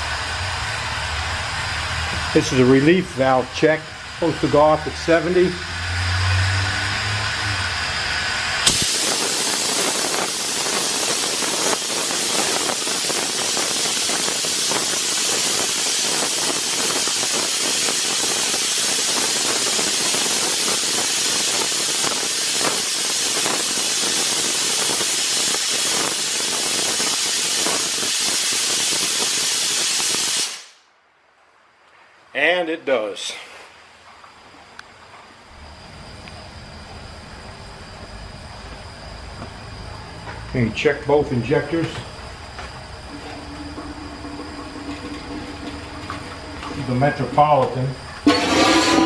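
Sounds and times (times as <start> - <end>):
steam hissing: 0.0 - 30.8, 40.8 - 49.0
relief valve popping open: 8.6 - 13.1.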